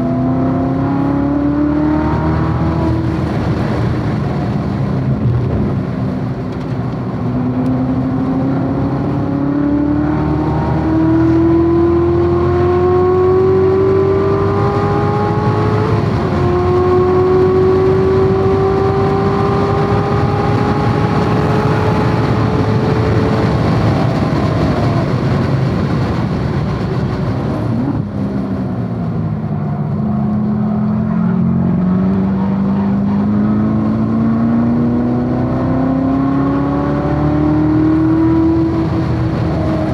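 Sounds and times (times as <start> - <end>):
car engine at full throttle: 0.0 - 39.9
wind and road noise: 0.0 - 39.9.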